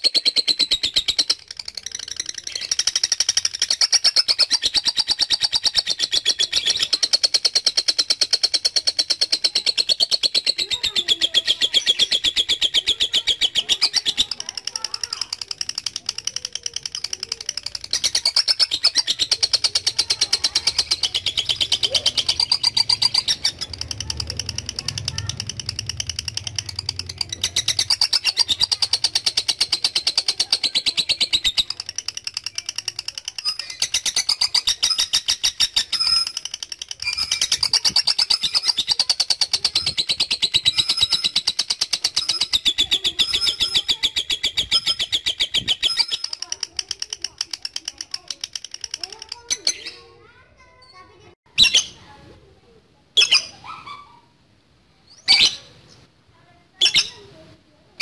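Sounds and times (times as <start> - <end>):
lovebird chattering trill: 0.0 - 50.2, 51.5 - 52.1, 53.2 - 54.4, 55.0 - 56.1, 56.8 - 57.5.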